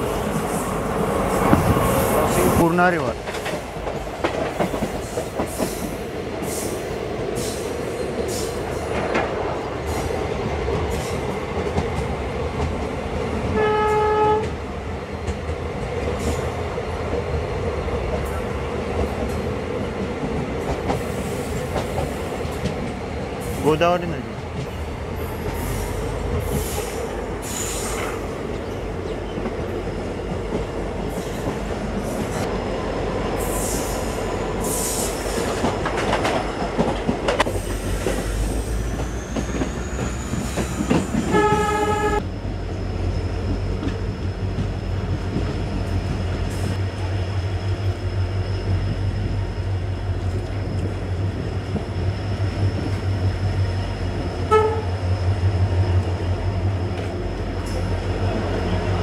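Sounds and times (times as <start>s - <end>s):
train wheels clattering on rails: 0.0s - 23.6s, 24.4s - 59.0s
locomotive horn: 13.5s - 14.6s, 41.3s - 42.2s, 54.5s - 55.0s.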